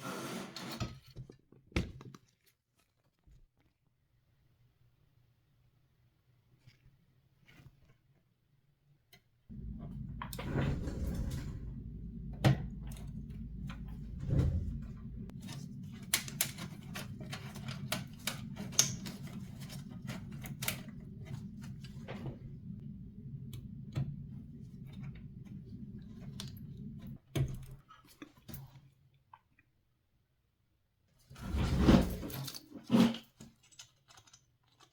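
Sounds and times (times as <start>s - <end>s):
low hum: 9.5s - 27.2s.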